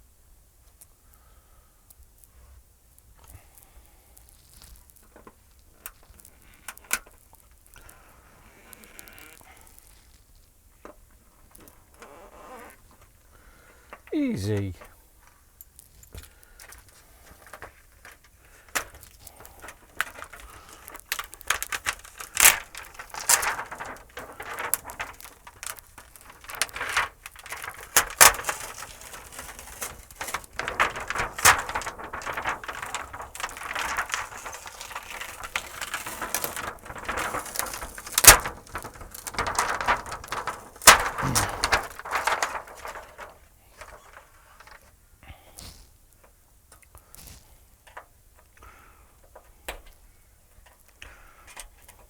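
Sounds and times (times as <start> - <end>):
scraping and rustling of parts: 21.5 - 45.0.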